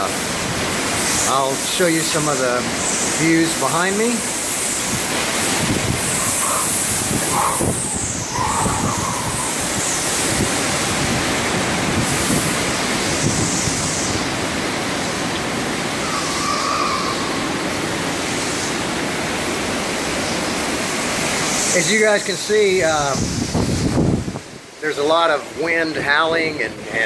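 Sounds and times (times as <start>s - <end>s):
wind howling in gusts: 0.0s - 24.8s
torrential rain: 0.0s - 27.0s.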